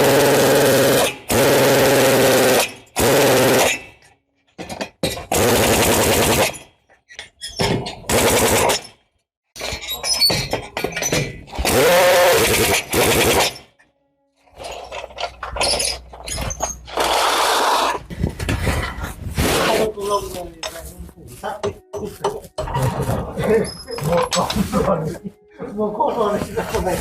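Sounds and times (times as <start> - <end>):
power tool bursts: 11.6 - 13.6.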